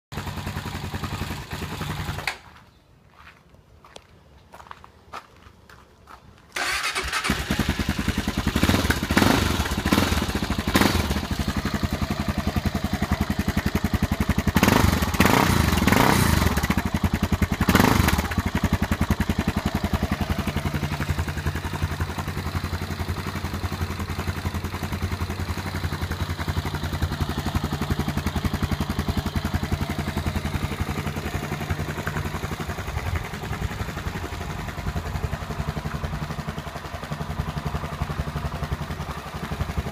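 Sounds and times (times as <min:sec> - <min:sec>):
motorcycle engine revving and idling: 0:00.1 - 0:02.3, 0:06.6 - 0:39.9.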